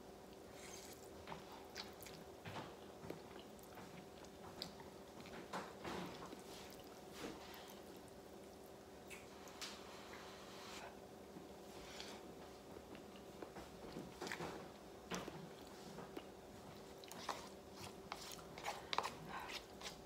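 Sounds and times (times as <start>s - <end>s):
wet chewing: 12.9s - 20.0s.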